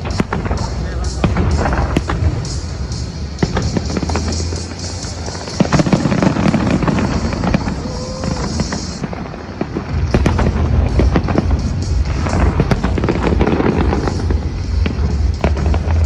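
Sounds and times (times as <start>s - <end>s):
fireworks bangs and crackles: 0.0s - 16.0s
low rumble: 0.0s - 16.0s
music playing: 0.0s - 16.0s.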